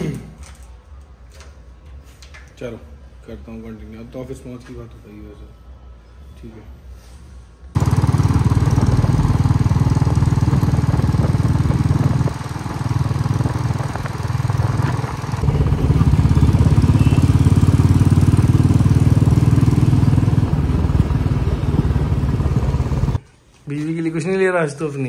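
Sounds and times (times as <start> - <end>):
motorcycle engine running: 7.8 - 23.2.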